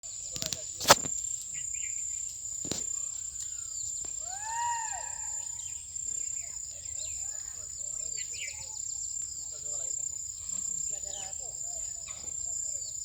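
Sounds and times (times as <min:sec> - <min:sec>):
crickets droning: 0:00.0 - 0:13.0
sharp click: 0:00.4 - 0:01.1.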